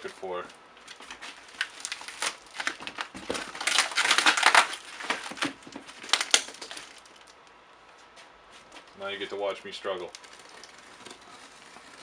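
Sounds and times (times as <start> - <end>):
cardboard box tearing: 1.3 - 7.1, 10.2 - 12.0.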